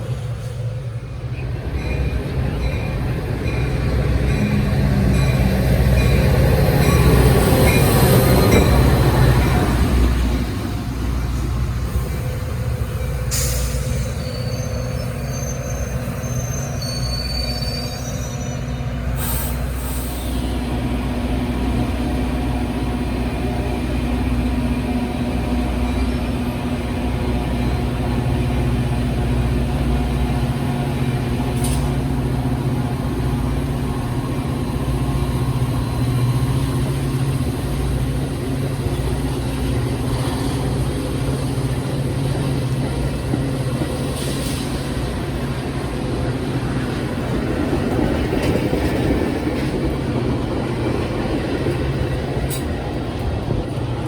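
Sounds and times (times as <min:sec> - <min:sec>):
train rumbling past: 0:00.0 - 0:54.0
high wheel squeals: 0:13.1 - 0:20.5.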